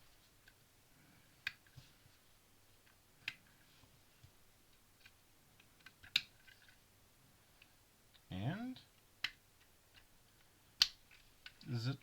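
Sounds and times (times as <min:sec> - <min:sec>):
plastic bricks clicking together: 0:05.0 - 0:06.8.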